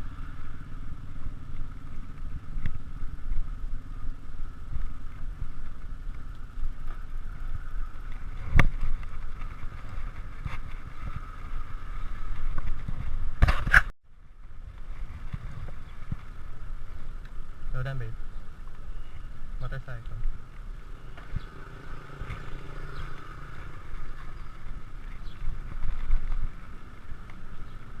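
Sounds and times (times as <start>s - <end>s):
wind buffeting: 0.0s - 13.6s, 20.2s - 28.0s
road rumble: 0.0s - 28.0s.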